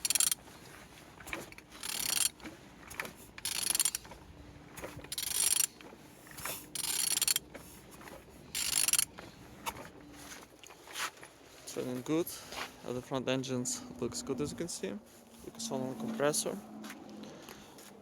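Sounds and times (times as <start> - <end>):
ratchet wrench clicking: 0.0 - 0.4, 1.8 - 2.3, 3.4 - 4.0, 5.1 - 5.7, 6.8 - 7.4, 8.6 - 9.1.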